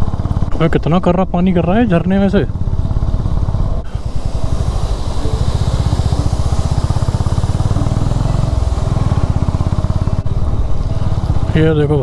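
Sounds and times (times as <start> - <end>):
motorcycle engine running: 0.0 - 12.0
rushing water hiss: 2.4 - 12.0.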